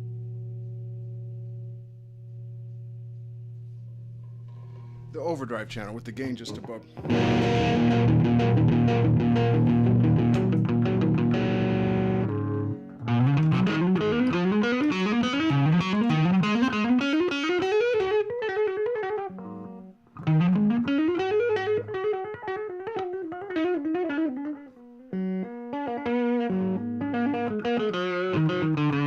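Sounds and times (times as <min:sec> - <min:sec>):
overdriven electric guitar runs: 0:07.1 - 0:18.2.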